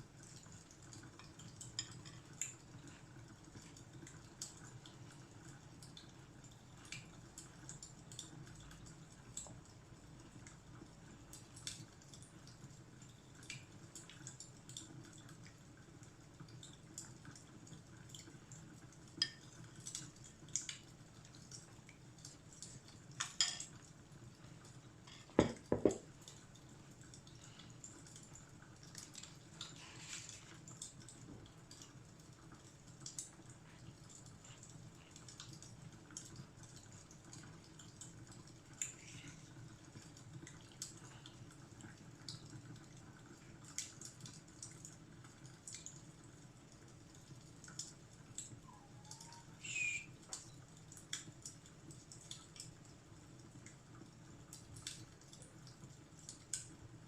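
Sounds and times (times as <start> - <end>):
fireplace crackling: 11.4 - 56.8.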